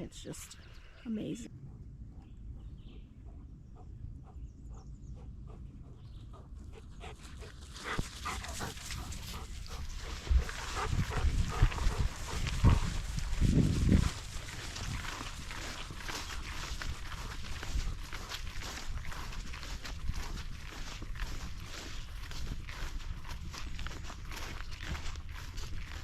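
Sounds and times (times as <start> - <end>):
dog breathing quickly: 2.9 - 21.9.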